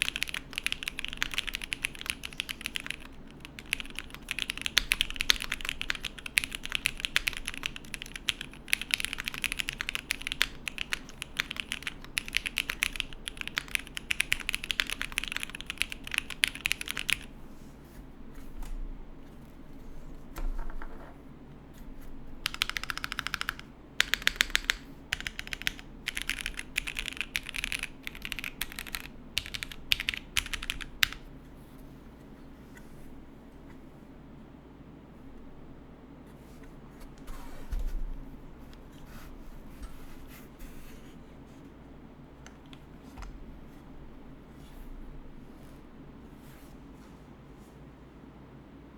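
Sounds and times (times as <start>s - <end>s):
mechanical keyboard typing: 0.0s - 17.3s, 22.4s - 31.2s.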